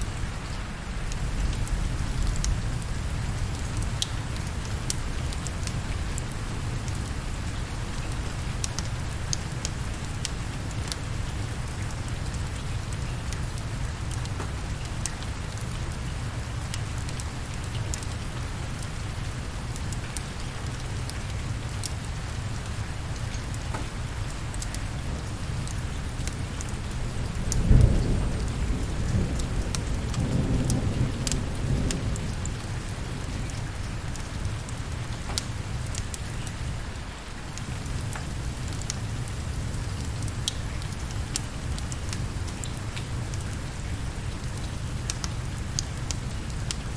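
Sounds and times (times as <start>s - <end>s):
steady rain: 0.0s - 46.9s
thunder rumbling: 25.8s - 33.3s.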